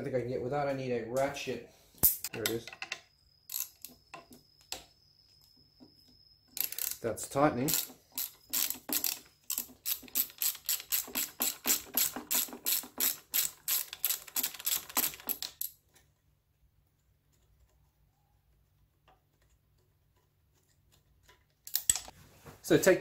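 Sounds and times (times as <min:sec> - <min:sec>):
ratchet wrench clicking: 0:03.5 - 0:04.0, 0:06.6 - 0:07.0, 0:07.6 - 0:15.8.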